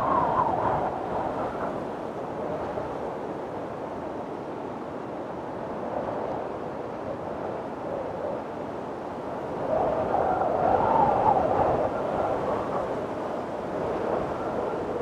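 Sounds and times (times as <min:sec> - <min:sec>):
wind blowing: 0:00.0 - 0:03.3.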